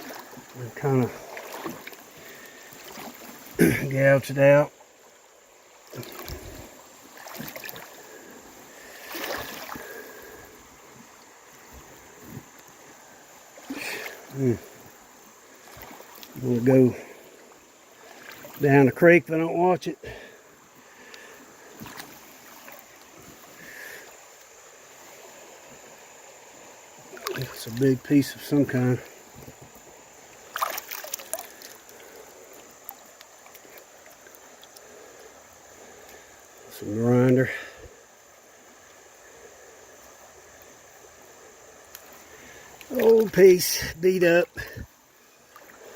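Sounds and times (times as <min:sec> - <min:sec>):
creek trickling: 0:00.0 - 0:45.9
water sloshing around wading person: 0:00.0 - 0:45.9.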